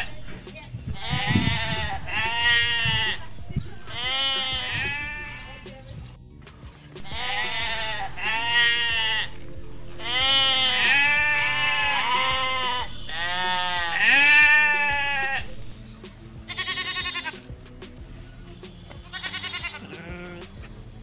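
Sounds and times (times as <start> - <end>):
sheep bleating: 1.0 - 5.6, 7.0 - 15.6, 16.5 - 17.5, 19.0 - 20.5.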